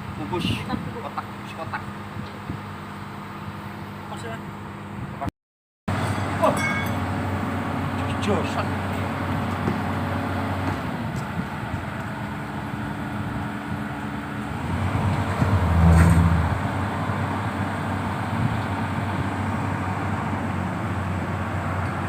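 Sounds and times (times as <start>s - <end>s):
excavator diesel engine running: 5.9s - 22.0s.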